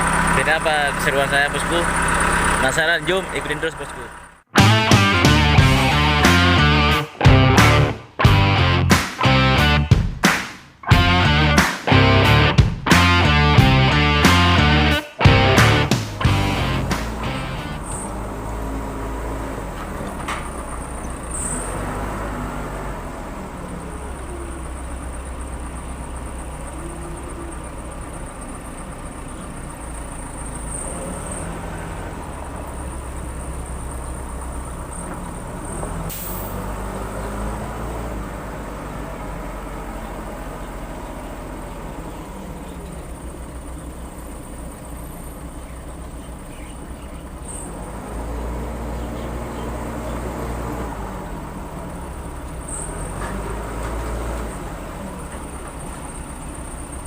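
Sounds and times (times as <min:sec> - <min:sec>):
diesel engine running: 0:00.0 - 0:10.2, 0:10.8 - 0:57.0
sharp knock: 0:10.0 - 0:10.7.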